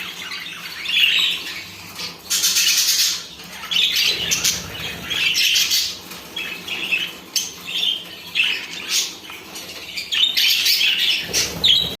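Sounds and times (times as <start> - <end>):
birds chirping and squawking: 0.0 - 12.0.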